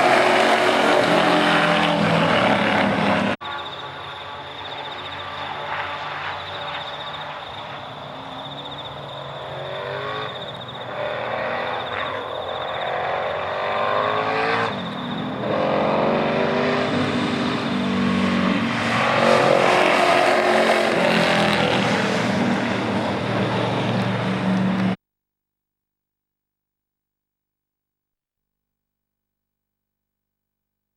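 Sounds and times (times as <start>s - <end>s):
race car engine accelerating: 0.0s - 3.8s, 4.9s - 25.0s.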